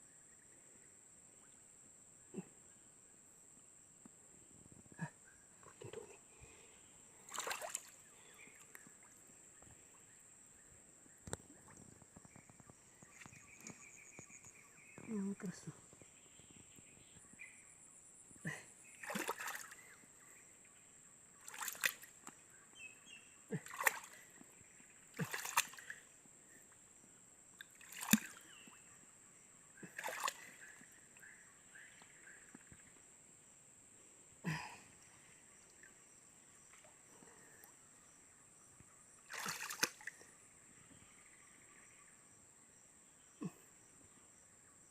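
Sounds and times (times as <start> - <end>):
water splashing and sloshing: 5.6 - 10.1, 19.0 - 19.9, 21.4 - 22.4, 23.5 - 26.1, 27.6 - 28.8, 29.8 - 31.0, 39.3 - 40.3.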